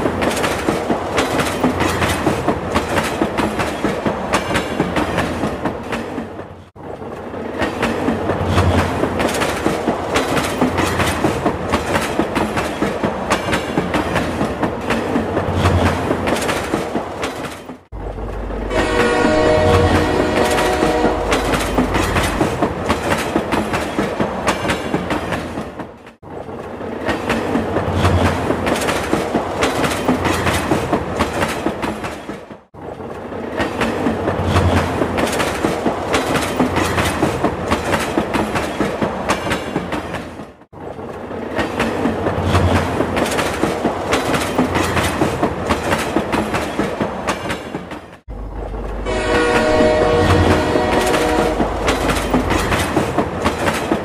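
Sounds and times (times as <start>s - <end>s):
wheels clacking over rail joints: 0.0s - 54.0s
train horn: 18.6s - 22.0s, 49.0s - 52.0s.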